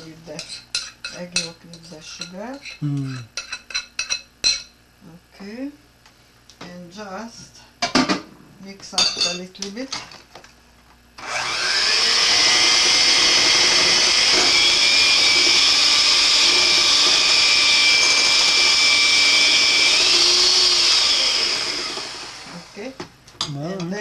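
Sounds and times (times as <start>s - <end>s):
electric mixer running: 11.2s - 22.9s.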